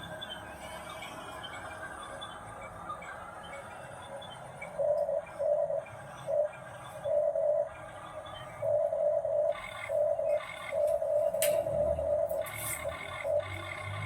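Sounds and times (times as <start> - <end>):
toy truck electric motor whirring: 9.9 - 14.0.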